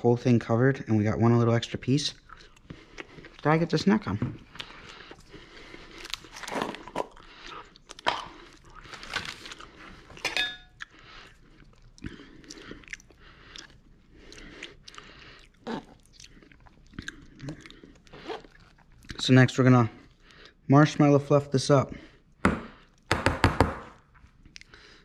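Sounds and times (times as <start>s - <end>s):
person chewing: 2.2s - 3.8s, 4.4s - 19.2s, 24.0s - 25.0s.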